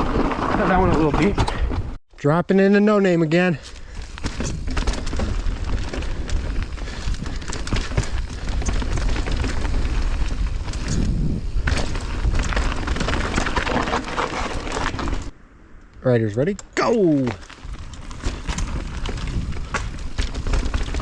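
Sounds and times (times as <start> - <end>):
tyres on dirt and rock: 0.0 - 2.0, 3.0 - 15.4, 16.3 - 21.0
bike chain and frame rattling: 3.6 - 15.3, 17.3 - 21.0
wind rumble on microphone: 4.0 - 13.9, 17.4 - 21.0.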